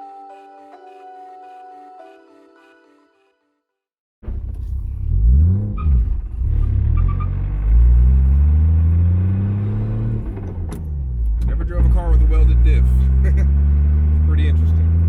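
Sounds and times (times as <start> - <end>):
car engine revving and accelerating: 4.8 - 15.0.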